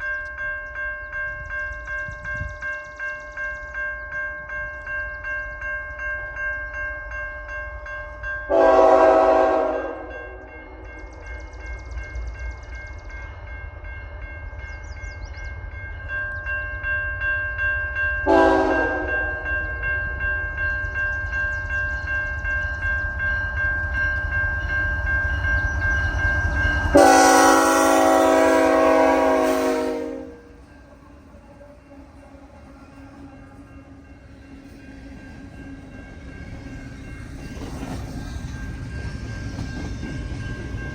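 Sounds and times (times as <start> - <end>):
train air horn blasts: 8.5 - 10.4, 18.2 - 19.5, 26.9 - 30.6
diesel locomotive rumbling: 8.5 - 40.9
level-crossing bell ringing: 15.8 - 27.2.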